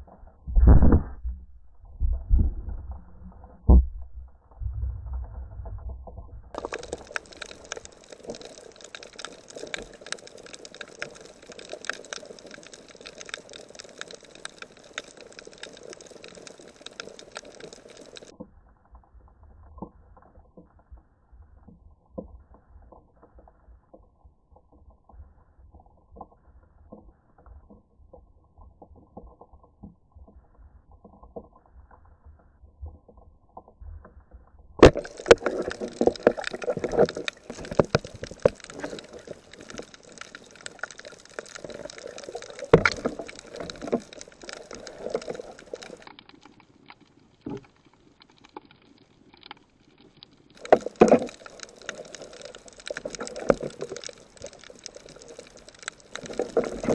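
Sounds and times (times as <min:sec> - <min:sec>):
low underwater rumble: 0:00.0 - 0:08.0
muffled underwater crackle: 0:00.0 - 0:56.9
water splashing and sloshing: 0:00.0 - 0:56.9.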